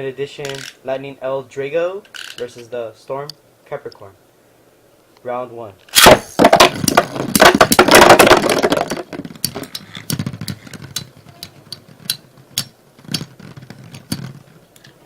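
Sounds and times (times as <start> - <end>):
spinning tops knocking: 6.0 - 15.0
spinning tops clashing and grinding: 6.4 - 15.0.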